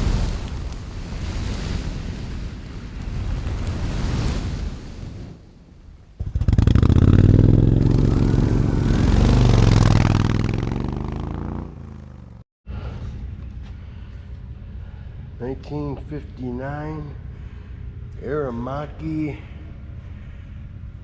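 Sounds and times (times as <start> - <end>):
motorcycle engine revving: 6.2 - 12.4.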